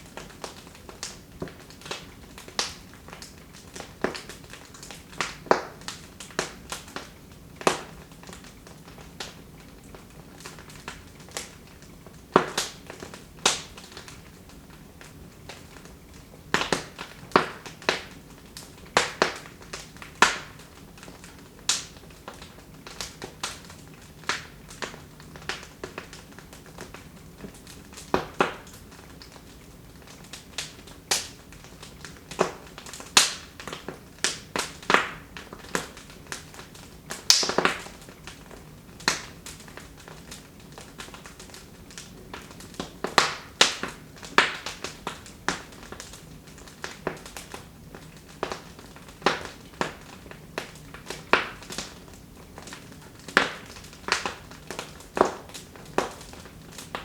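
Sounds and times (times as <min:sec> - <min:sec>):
faint steady hiss: 0:00.0 - 0:57.0
wood fire crackling: 0:00.0 - 0:57.0
sharp fire pops: 0:37.1 - 0:38.0, 0:52.6 - 0:57.0.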